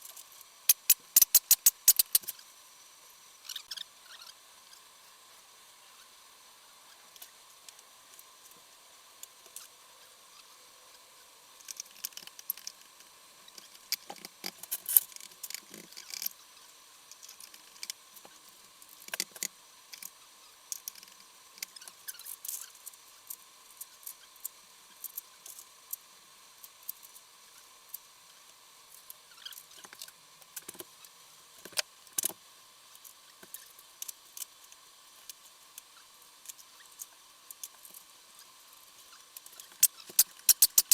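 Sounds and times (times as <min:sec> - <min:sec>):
hand tools and metal parts clinking: 0:40.1 - 0:40.9.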